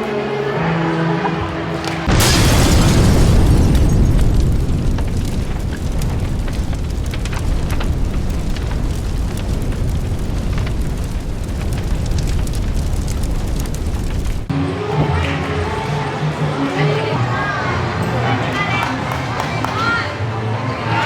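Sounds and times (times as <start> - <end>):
sharp crackles: 1.8 - 14.5
steady rumbling: 2.1 - 14.5.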